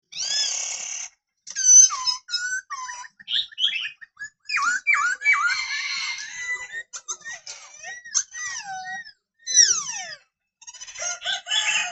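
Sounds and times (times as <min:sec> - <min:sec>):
bird singing whistled phrases: 0:03.2 - 0:06.0.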